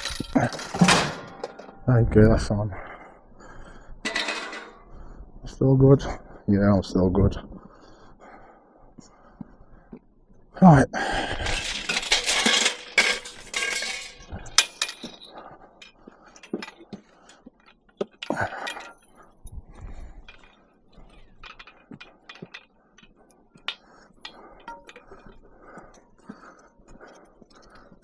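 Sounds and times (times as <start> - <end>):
scrap metal clinking and clanking: 0.0 - 2.0, 4.0 - 4.8, 11.3 - 19.3, 20.2 - 26.1.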